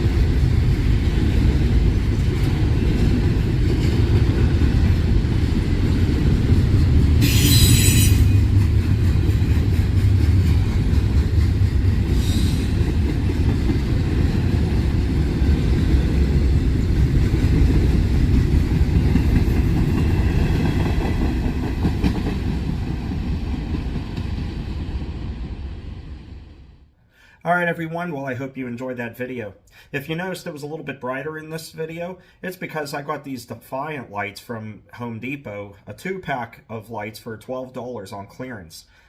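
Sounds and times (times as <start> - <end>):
train cars rumbling on track: 0.0 - 26.6
train wheel squeal: 7.2 - 8.6, 12.1 - 13.0.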